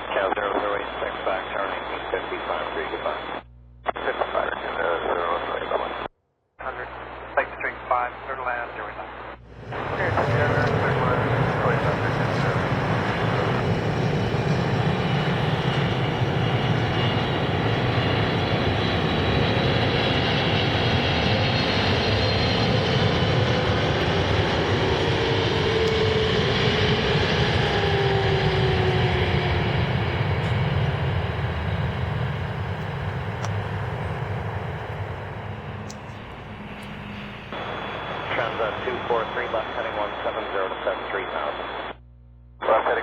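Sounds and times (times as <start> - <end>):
jet engines whining: 9.4 - 41.6
jet airliner passing: 9.5 - 41.1.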